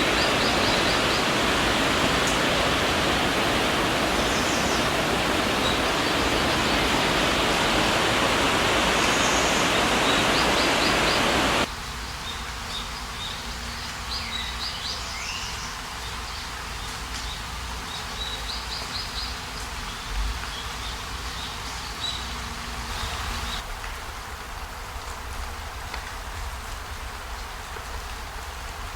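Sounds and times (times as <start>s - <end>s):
river rushing over rocks: 0.0s - 11.7s
small birds chirping: 0.0s - 19.4s.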